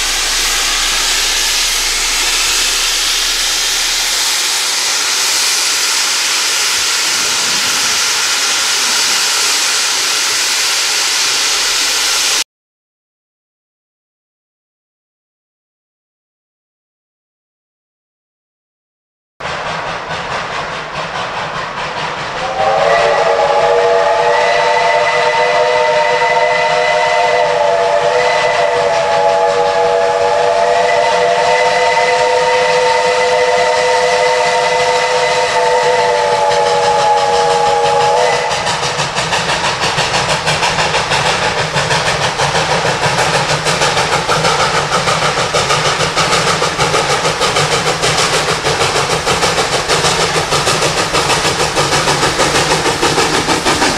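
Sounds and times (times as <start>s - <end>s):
running train pulsing: 0.0s - 12.4s, 19.4s - 53.9s
steam hissing: 0.0s - 12.4s, 19.4s - 53.9s
steam locomotive chime whistle: 0.0s - 12.4s, 22.4s - 39.2s.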